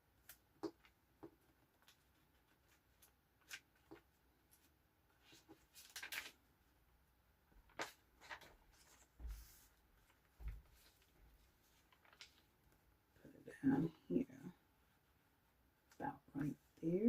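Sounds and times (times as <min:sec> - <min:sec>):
paper rustling: 0:00.2 - 0:06.5, 0:07.5 - 0:12.8.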